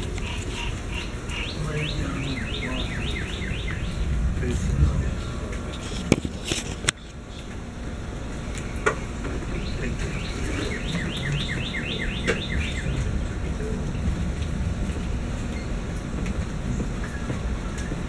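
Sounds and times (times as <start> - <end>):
steady rain: 0.0 - 18.0
rapid falling chirps: 0.4 - 4.2.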